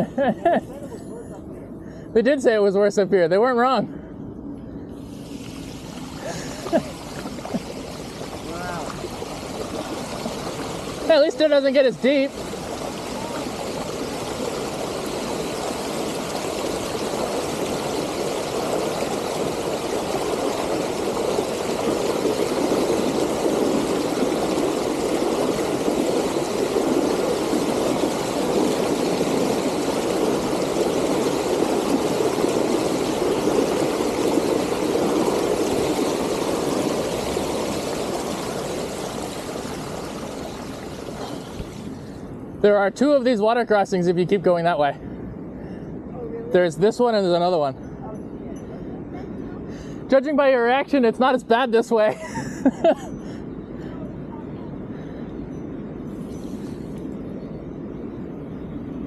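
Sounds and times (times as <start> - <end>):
rushing floodwater: 5.1 - 44.9.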